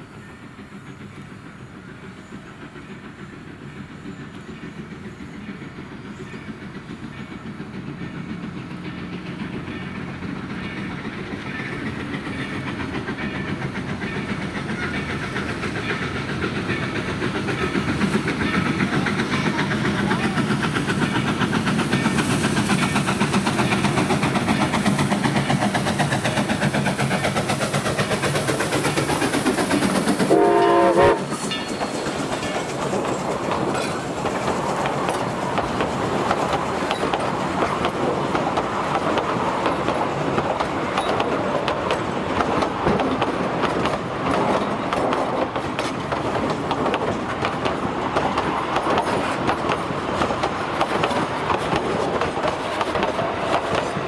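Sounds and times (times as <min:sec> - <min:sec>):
train wheels clattering: 0:00.0 - 0:54.0
steam locomotive whistle: 0:30.2 - 0:31.5.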